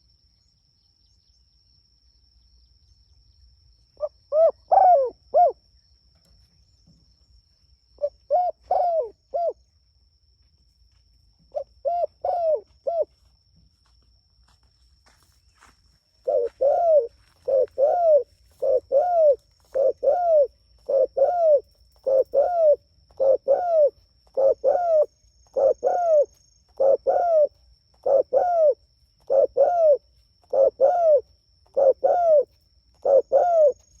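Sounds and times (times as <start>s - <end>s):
dove cooing: 4.0s - 5.6s, 8.0s - 9.6s, 11.5s - 13.1s, 16.2s - 34.0s.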